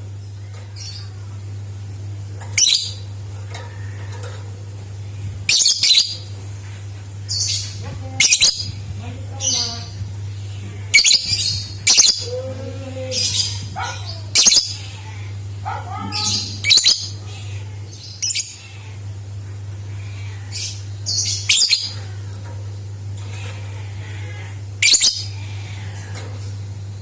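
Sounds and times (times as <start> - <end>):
steady low hum: 0.0 - 27.0
lovebirds chirping and screeching: 0.4 - 1.4, 2.4 - 4.5, 5.1 - 26.5.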